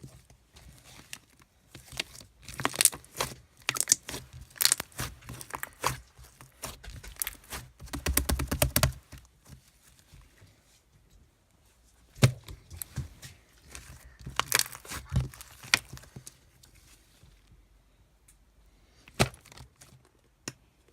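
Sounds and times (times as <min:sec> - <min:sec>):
rustling and crinkling handling noise: 0:00.0 - 0:17.8, 0:18.4 - 0:20.9.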